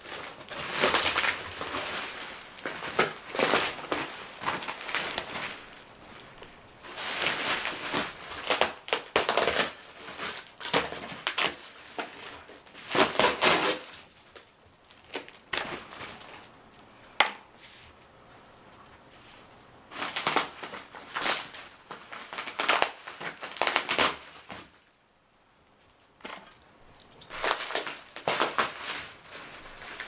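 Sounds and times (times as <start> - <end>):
cardboard and packing rustling: 0.0 - 16.6, 26.2 - 30.0.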